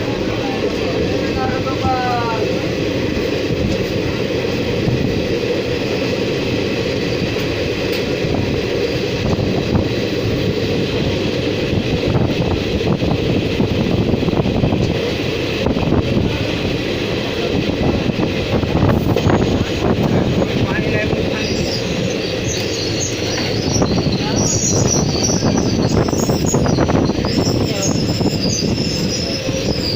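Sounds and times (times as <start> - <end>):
train wheels rumbling on track: 0.0 - 29.9.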